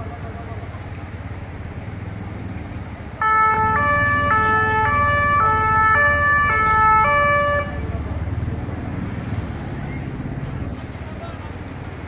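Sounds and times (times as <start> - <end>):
low traffic rumble: 0.0 - 12.0
two-tone emergency siren: 3.2 - 7.9.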